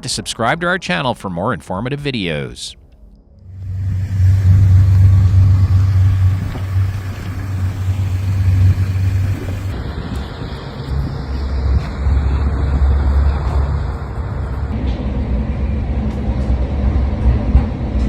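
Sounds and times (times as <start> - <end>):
noise: 0.0 - 16.8
loud low rumble: 3.4 - 18.0.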